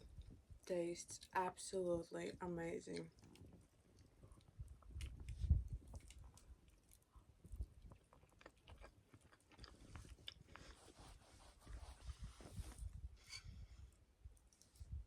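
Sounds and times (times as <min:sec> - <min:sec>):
person chewing food: 0:03.1 - 0:11.2.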